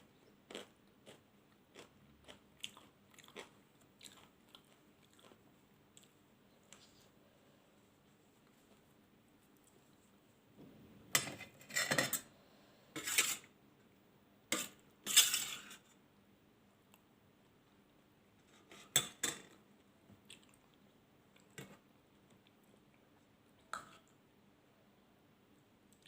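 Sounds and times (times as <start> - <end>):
cutlery scraping dishes: 11.1 - 12.3, 13.0 - 13.5, 14.5 - 15.8, 18.4 - 19.6.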